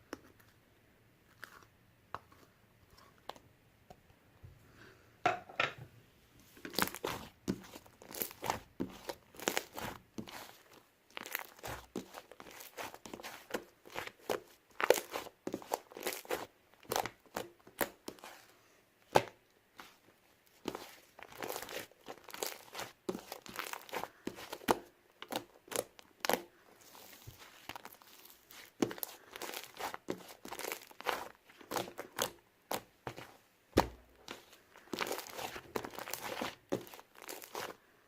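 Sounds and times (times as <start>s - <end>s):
slime crackling and popping: 6.7s - 18.4s, 20.6s - 33.2s, 33.8s - 37.8s.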